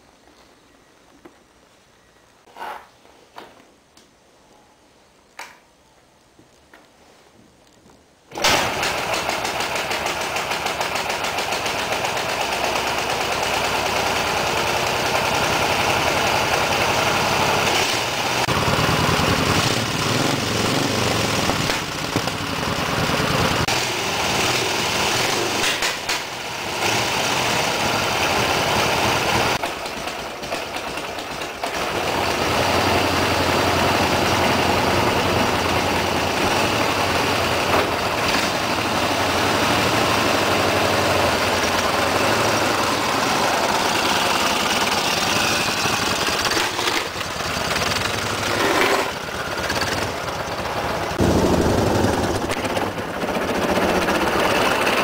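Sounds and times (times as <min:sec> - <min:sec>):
motorcycle kick start: 0:08.3 - 0:27.6, 0:29.4 - 0:33.0, 0:35.2 - 0:38.8, 0:41.0 - 0:55.0
motorcycle engine revving: 0:08.4 - 0:29.7, 0:30.4 - 0:55.0.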